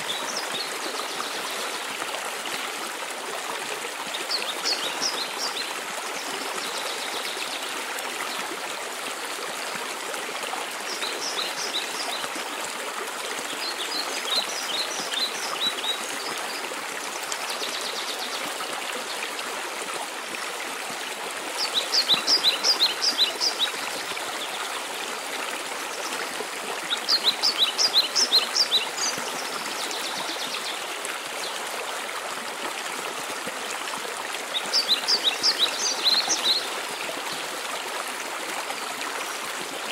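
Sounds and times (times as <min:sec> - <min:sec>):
songbird singing: 0:21.6 - 0:24.6, 0:26.9 - 0:30.8, 0:34.5 - 0:36.7.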